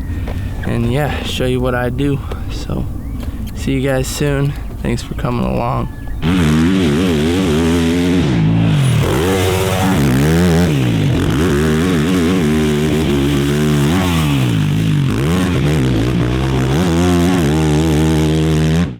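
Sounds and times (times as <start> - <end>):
dirt bike engine revving: 4.9 - 18.9.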